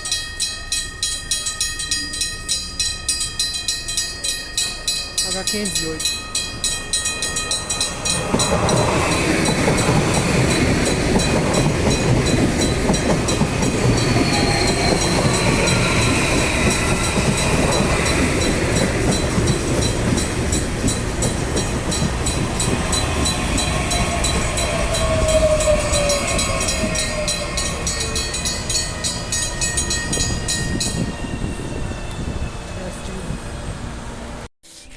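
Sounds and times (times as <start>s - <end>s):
train wheels rumbling on rail: 0.0s - 34.5s
metallic squeals: 13.6s - 18.4s, 22.9s - 33.7s.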